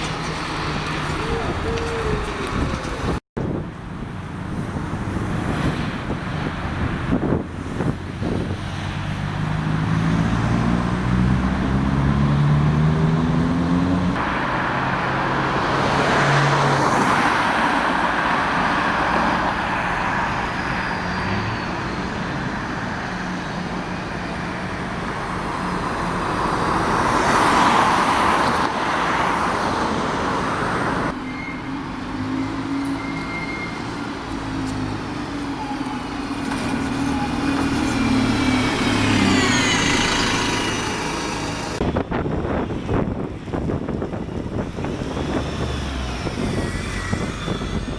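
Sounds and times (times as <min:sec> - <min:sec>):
road traffic: 0:00.0 - 0:47.9
vehicles passing: 0:00.0 - 0:47.9
vehicle engine accelerating: 0:08.7 - 0:16.9, 0:36.6 - 0:41.9.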